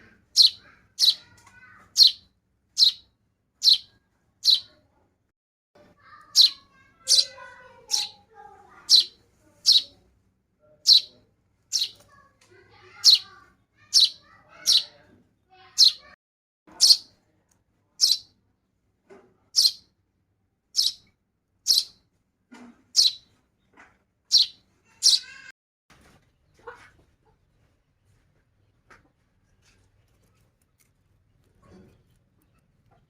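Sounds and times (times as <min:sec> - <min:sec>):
baby bird chirping: 0:00.0 - 0:04.8, 0:06.1 - 0:10.0, 0:10.8 - 0:12.1, 0:12.8 - 0:17.1, 0:18.0 - 0:18.3, 0:19.6 - 0:19.9, 0:20.8 - 0:21.1, 0:21.7 - 0:22.0, 0:22.9 - 0:23.3, 0:24.3 - 0:25.5.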